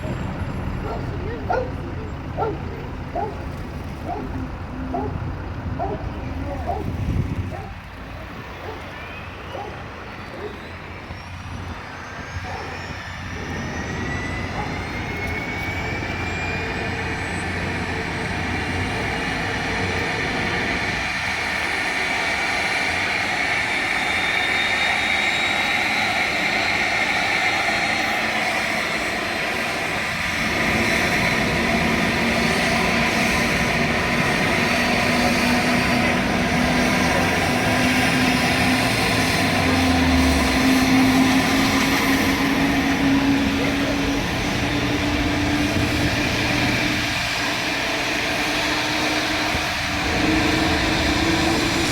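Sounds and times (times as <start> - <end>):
helicopter turbine whine: 0.0 - 51.9.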